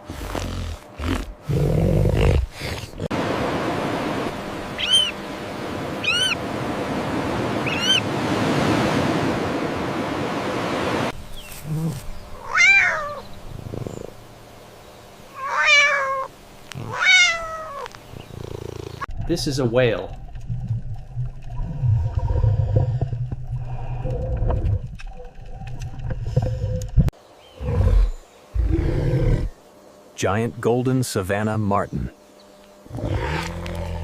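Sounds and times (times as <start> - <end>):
meow-like animal calls: 6.0 - 6.4, 12.4 - 13.2, 15.3 - 18.0.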